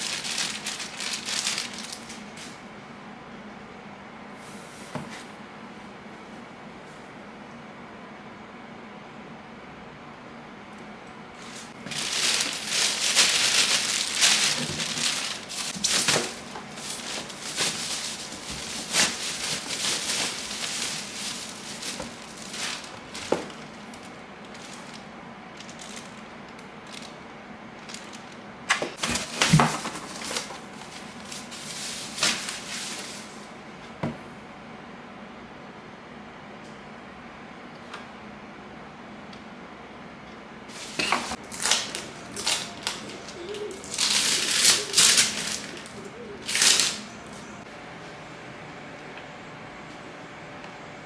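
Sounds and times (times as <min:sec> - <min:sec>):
packaging crinkling and rustling: 0:00.0 - 0:02.6, 0:11.4 - 0:27.2, 0:27.8 - 0:33.6, 0:40.7 - 0:47.6.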